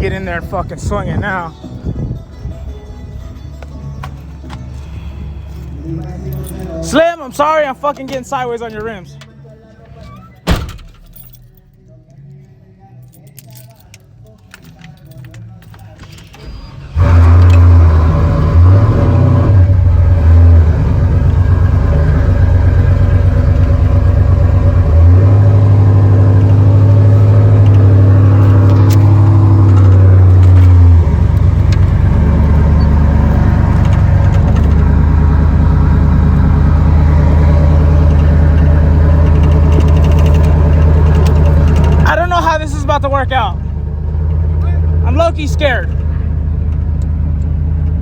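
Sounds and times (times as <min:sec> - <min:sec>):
truck engine at high revs: 0:16.4 - 0:48.0.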